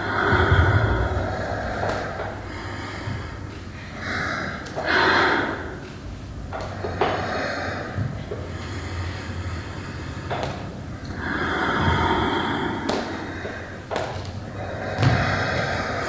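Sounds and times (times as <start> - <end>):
person breathing and gasping: 0.0 - 4.6
low steady hum: 0.0 - 12.7.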